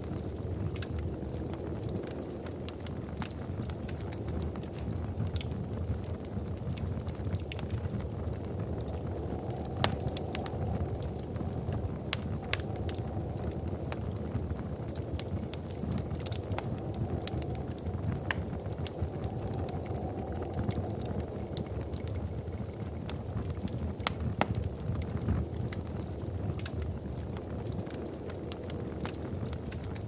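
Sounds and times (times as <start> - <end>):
low rumble of flames: 0.0 - 30.0
wood fire popping and snapping: 0.0 - 30.0.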